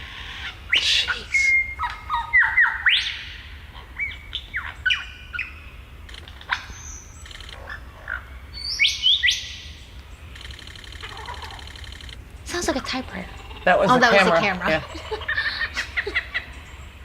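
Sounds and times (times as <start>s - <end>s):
lyrebird whistling calls: 0.0s - 16.9s
fast even clicking: 7.2s - 7.6s, 10.4s - 12.2s.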